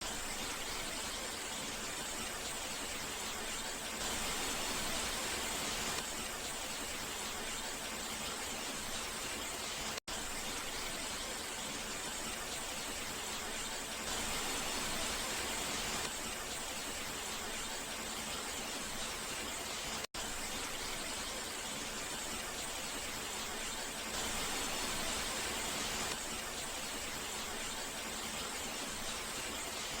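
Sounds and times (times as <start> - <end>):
steady rain hiss: 4.0 - 6.0, 14.0 - 16.1, 24.1 - 30.0.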